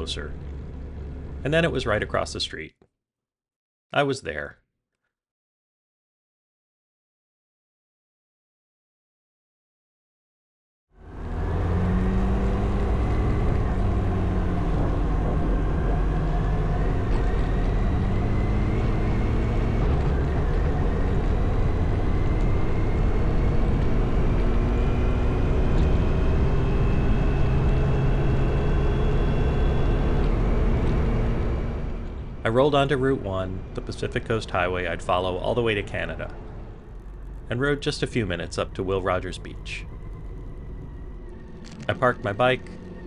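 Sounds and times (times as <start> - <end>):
wind and road noise: 11.0 - 38.7
motorcycle engine running: 11.9 - 31.2.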